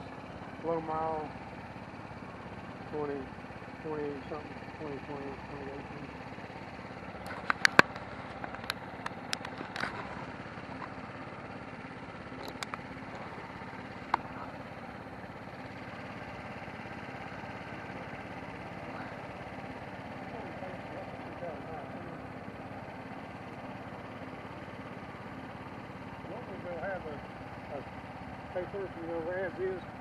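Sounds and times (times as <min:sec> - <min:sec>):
wind and road noise: 0:06.2 - 0:17.6
sharp clicks: 0:07.2 - 0:10.9, 0:12.3 - 0:13.2.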